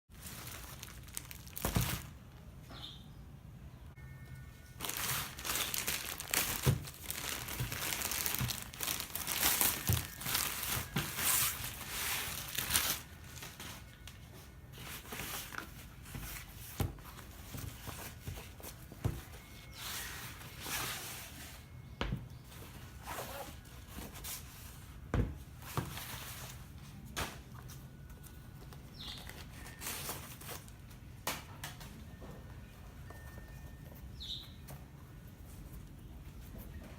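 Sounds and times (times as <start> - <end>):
packaging crinkling and tearing: 0.1 - 2.2, 4.8 - 14.1.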